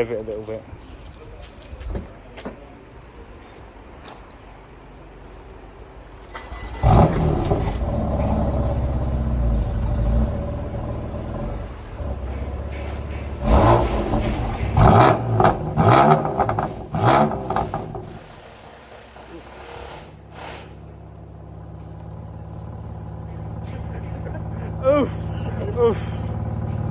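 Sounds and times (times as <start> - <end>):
car engine starting and idling: 6.2 - 26.9
engine revving in short blips: 6.3 - 18.2.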